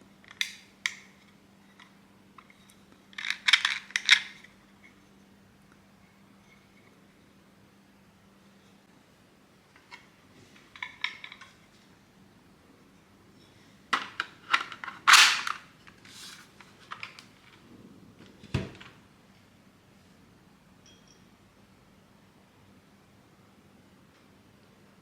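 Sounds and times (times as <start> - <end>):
plastic parts clicking and snapping: 14.0 - 15.6.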